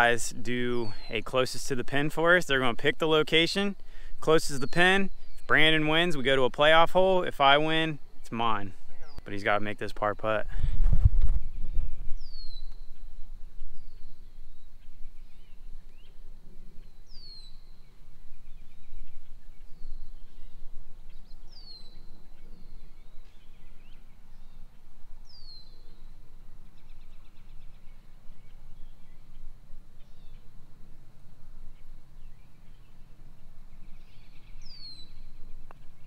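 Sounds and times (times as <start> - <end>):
faint bird chirps: 0.0 - 1.4, 11.3 - 30.7, 31.6 - 36.0
low background noise: 0.0 - 36.0.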